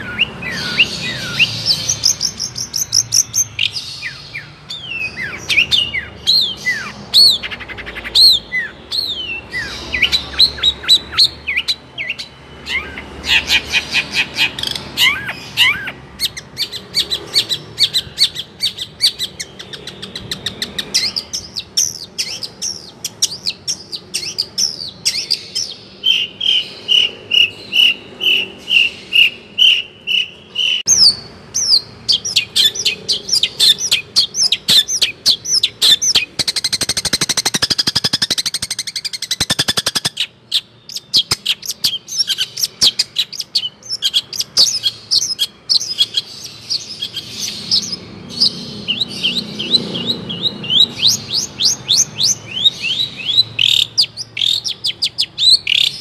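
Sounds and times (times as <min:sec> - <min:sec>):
songbird singing chirps and trills: 0:00.0 - 0:56.0.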